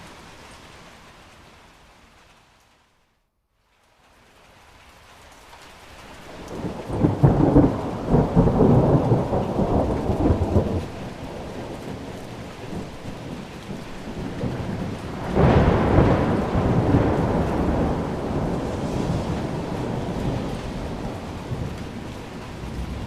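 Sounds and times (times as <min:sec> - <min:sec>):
steady rain: 0:00.0 - 0:23.0
thunder rolling: 0:06.4 - 0:23.0.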